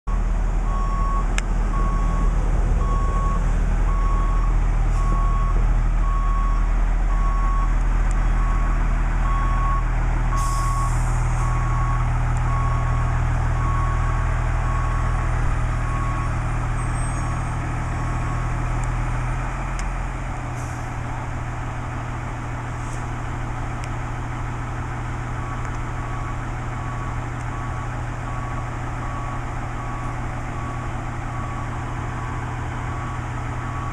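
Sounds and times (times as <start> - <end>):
backup alarm beeping: 0.1 - 7.7
diesel engine running: 0.1 - 33.9.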